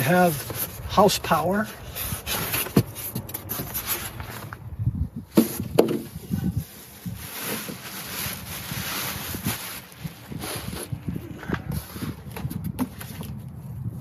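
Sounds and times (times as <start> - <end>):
packaging rustling: 6.6 - 11.0.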